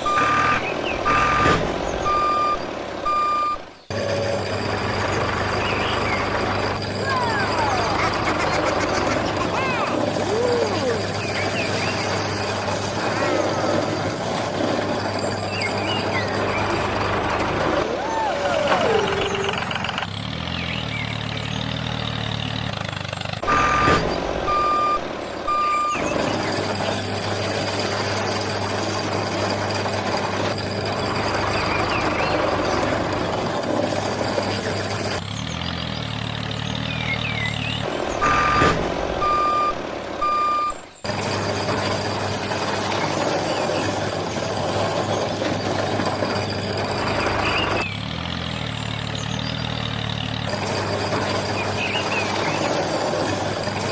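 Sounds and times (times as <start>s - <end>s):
reversing alarm beeps: 0.0s - 3.7s, 23.4s - 26.1s, 38.2s - 40.8s
heavy vehicle engine running: 0.0s - 53.9s.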